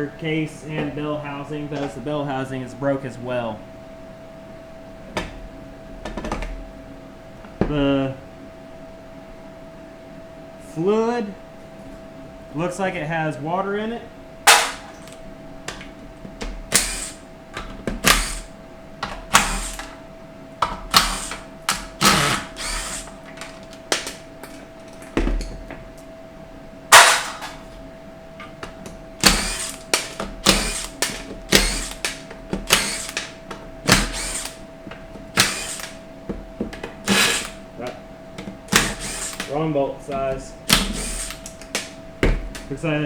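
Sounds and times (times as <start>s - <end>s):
power tool bursts: 14.5s - 15.2s, 16.7s - 17.2s, 18.0s - 18.5s, 19.3s - 19.9s, 20.9s - 23.2s, 26.9s - 27.5s, 29.2s - 34.6s, 35.3s - 36.0s, 37.0s - 37.6s, 38.7s - 39.5s, 40.7s - 41.8s.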